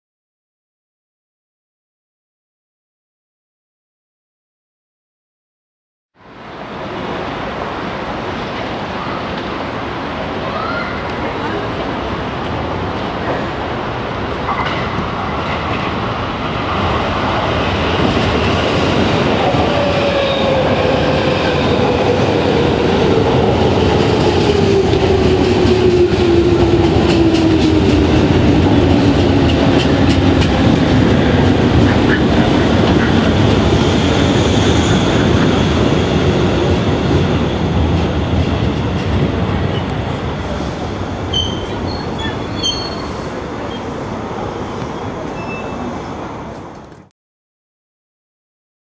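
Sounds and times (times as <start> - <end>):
train wheels clattering on rails: 20.5 - 43.1
brake squeals: 41.3 - 43.9, 45.4 - 45.9.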